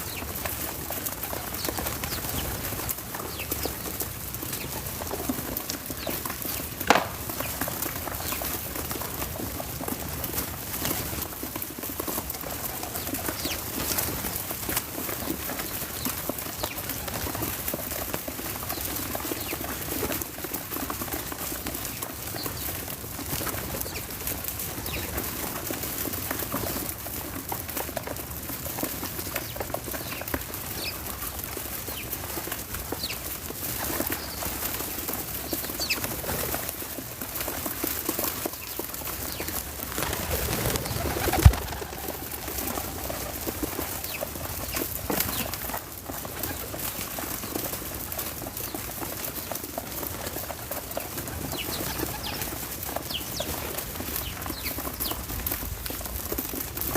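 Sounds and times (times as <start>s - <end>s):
sharp knock: 6.9s - 7.2s
birds chirping: 38.5s - 45.6s.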